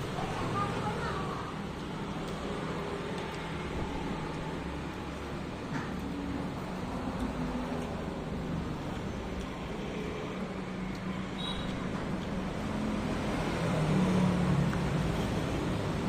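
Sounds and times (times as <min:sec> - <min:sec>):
road traffic noise: 0:00.0 - 0:16.0
vehicle passing: 0:12.4 - 0:16.0.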